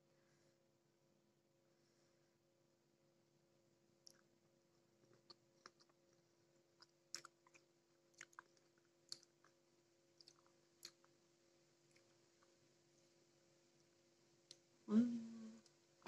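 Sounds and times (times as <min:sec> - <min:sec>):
low steady hum: 0:00.0 - 0:16.0
mouth chewing crunchy fruit: 0:05.0 - 0:09.6, 0:10.2 - 0:11.2.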